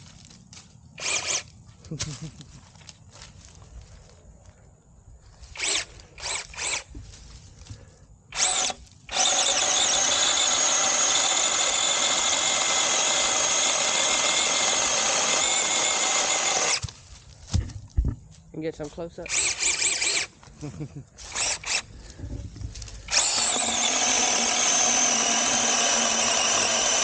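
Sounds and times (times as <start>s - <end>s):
electric chainsaw whining: 1.0s - 1.5s, 5.5s - 6.9s, 8.3s - 16.9s, 19.3s - 20.4s, 21.2s - 22.2s, 22.8s - 27.0s.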